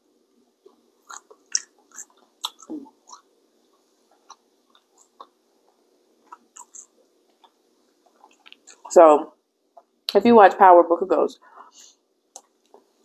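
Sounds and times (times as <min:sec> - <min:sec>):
person chewing food: 0:00.6 - 0:08.9.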